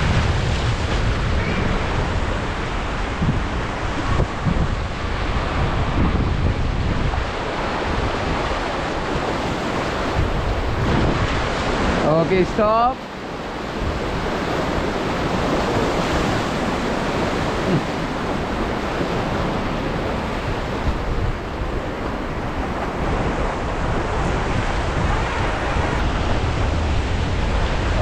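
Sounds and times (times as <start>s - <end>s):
rapids rushing water: 0.0s - 28.0s
wind buffeting microphone: 0.0s - 28.0s.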